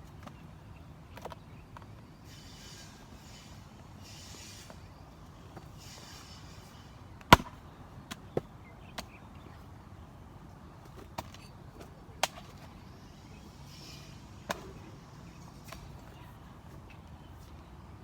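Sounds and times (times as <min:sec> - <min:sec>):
axe chopping wood: 0:07.3 - 0:07.6.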